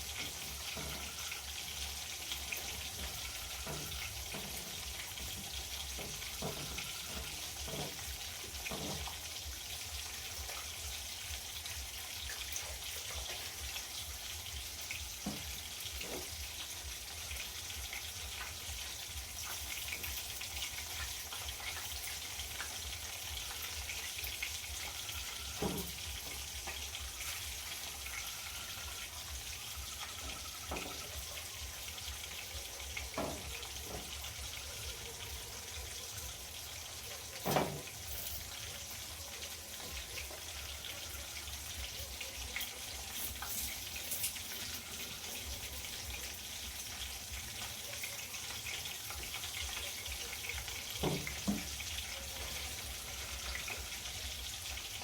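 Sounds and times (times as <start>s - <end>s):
watery hiss: 43.0s - 45.6s.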